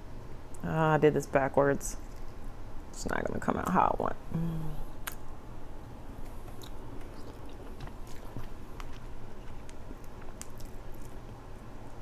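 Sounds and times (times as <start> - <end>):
chewing: 6.3 - 11.4
crab shell cracking: 7.7 - 11.2.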